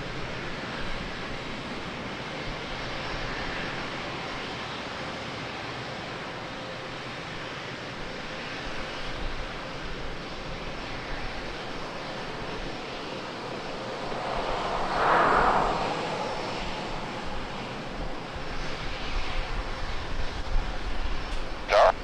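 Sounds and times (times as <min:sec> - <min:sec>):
jet engine rushing: 0:12.3 - 0:22.0.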